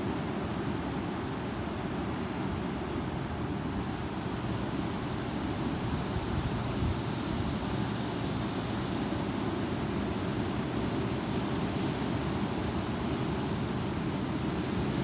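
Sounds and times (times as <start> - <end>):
strong wind blowing: 3.7 - 9.1.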